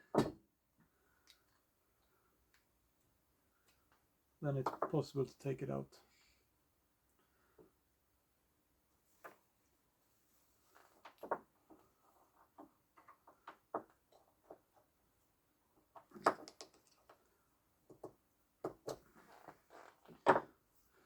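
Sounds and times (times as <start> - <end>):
small parts clicking and knocking: 15.8 - 19.0.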